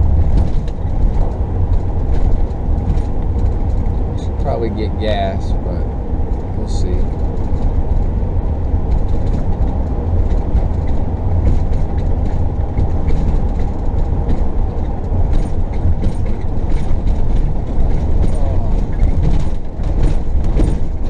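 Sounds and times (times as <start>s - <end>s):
road and engine rumble: 0.0s - 21.0s.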